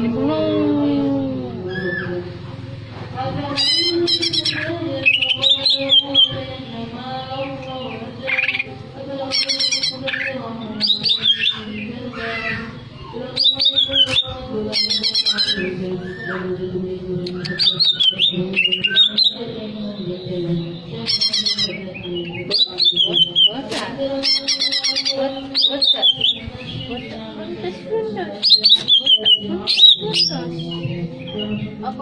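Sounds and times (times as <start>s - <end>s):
bird singing high chirps: 3.6s - 6.4s, 9.3s - 16.4s, 17.3s - 19.6s, 20.2s - 27.2s, 28.4s - 31.7s.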